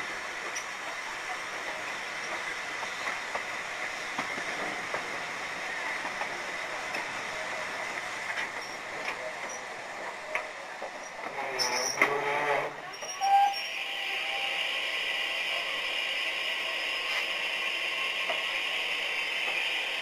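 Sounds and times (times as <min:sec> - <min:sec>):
train wheels running on rail: 0:00.0 - 0:20.0
wheels clicking over rail joints: 0:08.0 - 0:13.2.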